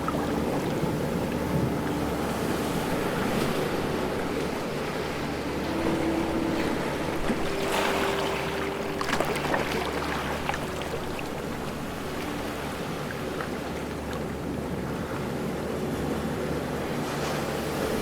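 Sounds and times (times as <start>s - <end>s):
water splashes: 0.0s - 14.4s
low steady hum: 0.0s - 18.0s
ocean waves washing in: 0.0s - 18.0s.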